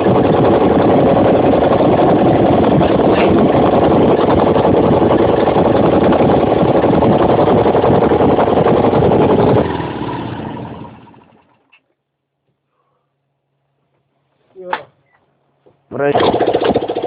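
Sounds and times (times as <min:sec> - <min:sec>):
motorcycle engine running: 0:00.0 - 0:11.7, 0:16.2 - 0:17.0.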